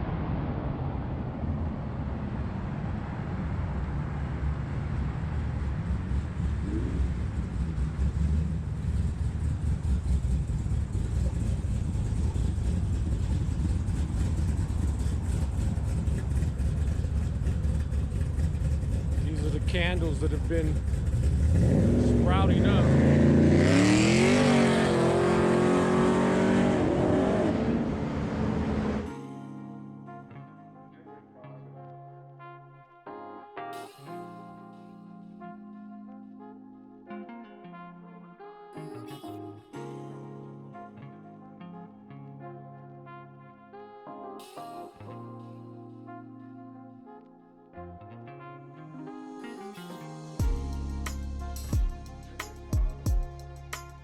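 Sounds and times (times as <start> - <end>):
street traffic rumble: 0.0 - 29.1, 50.4 - 54.0
car engine revving: 1.4 - 29.1.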